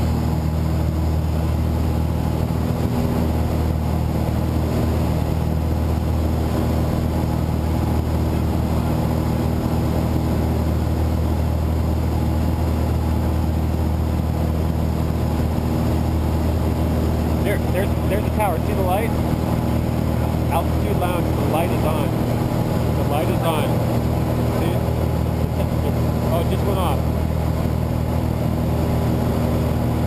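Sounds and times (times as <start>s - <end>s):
light aircraft engine droning: 0.0s - 30.0s.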